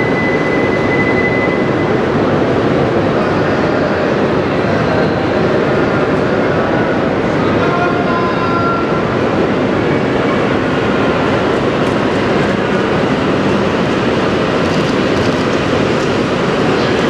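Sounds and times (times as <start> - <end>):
faint high whine: 0.0 - 2.2
train wheels running on rail: 0.0 - 17.0.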